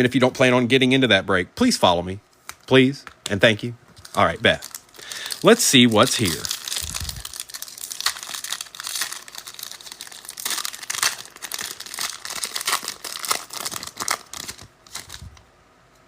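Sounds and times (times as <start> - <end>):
foil wrapper crinkling and tearing: 4.0 - 15.4.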